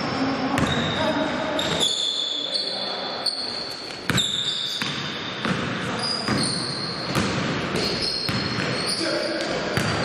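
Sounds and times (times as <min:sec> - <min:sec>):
sneakers squeaking: 0:00.0 - 0:10.0
basketball bouncing on gym floor: 0:00.5 - 0:01.0, 0:03.9 - 0:10.0.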